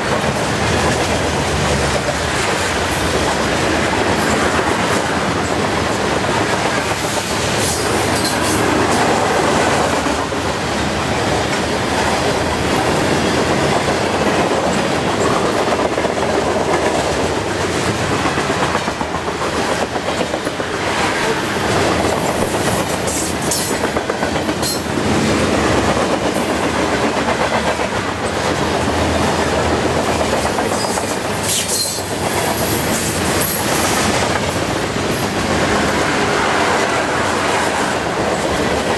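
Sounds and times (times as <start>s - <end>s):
train wheels rolling on rails: 0.0s - 38.9s
wheel squeals: 30.7s - 32.1s.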